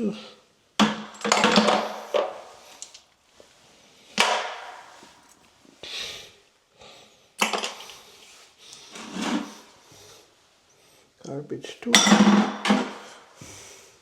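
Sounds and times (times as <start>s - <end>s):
metal parts knocking into bucket: 0.8s - 2.4s, 11.9s - 13.1s.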